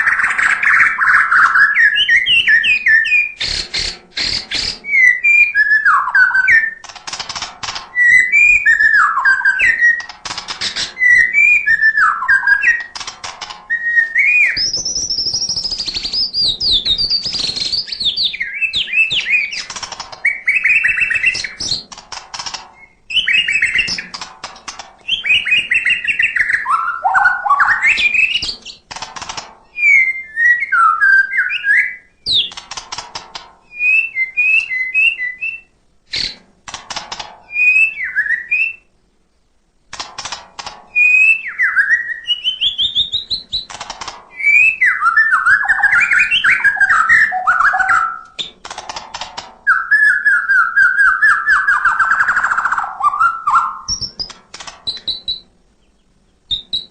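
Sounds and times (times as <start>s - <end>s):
harsh bird clicks: 0.0s - 5.0s, 5.6s - 29.7s, 32.3s - 34.8s, 36.1s - 37.4s, 39.9s - 55.4s
bird singing whistled phrases: 0.0s - 6.8s, 8.0s - 10.1s, 11.0s - 12.9s, 13.7s - 19.6s, 20.2s - 21.8s, 22.8s - 24.0s, 25.1s - 28.8s, 29.8s - 32.5s, 33.7s - 36.3s, 37.5s - 38.9s, 40.9s - 43.7s, 44.4s - 48.4s, 49.7s - 54.3s, 54.9s - 55.4s, 56.5s - 56.9s.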